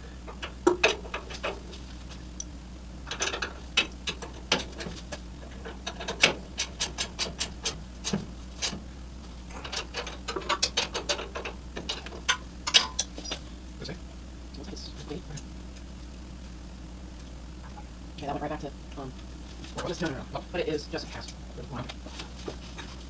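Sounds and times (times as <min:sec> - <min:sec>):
ratchet wrench clicking: 0:09.6 - 0:13.4.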